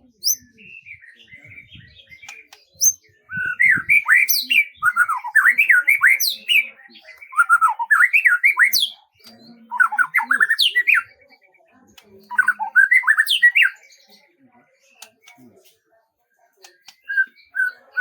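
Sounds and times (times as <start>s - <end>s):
songbird warbling: 12.3s - 13.8s.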